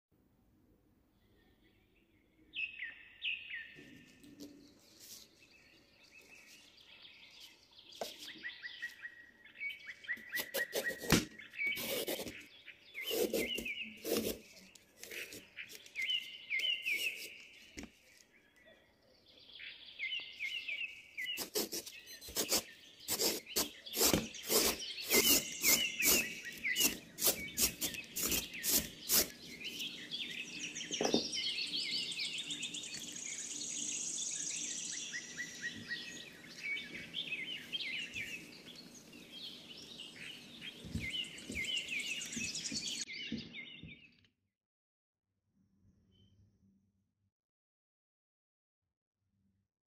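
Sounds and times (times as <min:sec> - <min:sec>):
birds chirping and trilling: 0:01.2 - 0:44.3
gourd being scraped: 0:10.3 - 0:12.4, 0:13.0 - 0:17.8, 0:21.2 - 0:30.0.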